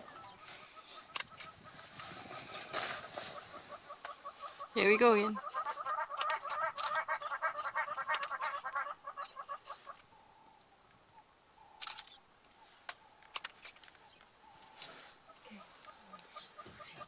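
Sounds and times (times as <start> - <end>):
bird cackling call: 0.0 - 10.2
sharp clicks: 5.9 - 7.0, 11.8 - 14.3.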